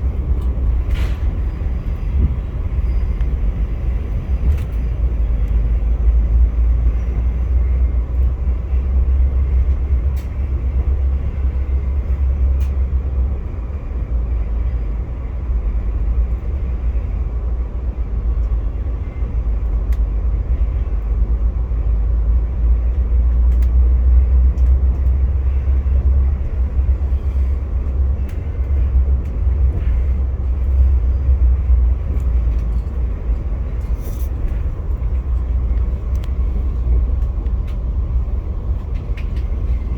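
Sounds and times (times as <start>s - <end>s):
train rumbling on track: 0.0s - 39.9s
faint clicks: 23.5s - 23.8s.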